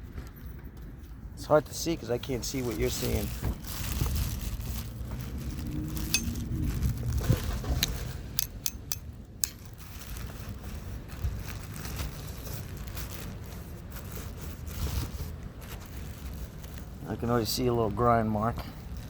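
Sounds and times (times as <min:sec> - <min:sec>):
steady low rumble: 0:01.4 - 0:14.2
sharp clicks and knocks: 0:07.6 - 0:09.6.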